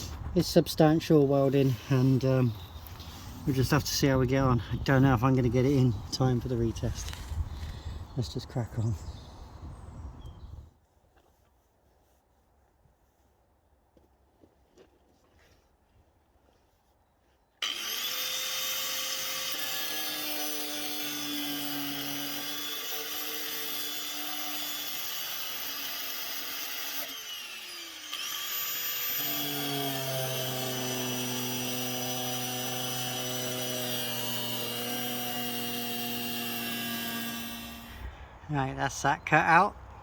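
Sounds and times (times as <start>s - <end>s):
angle grinder cutting steel: 17.6s - 38.1s.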